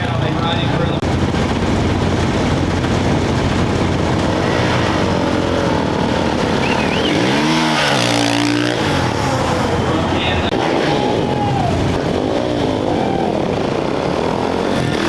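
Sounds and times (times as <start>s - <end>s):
din of engine noise: 0.0s - 15.0s
motorcycle engine revving: 0.0s - 15.0s.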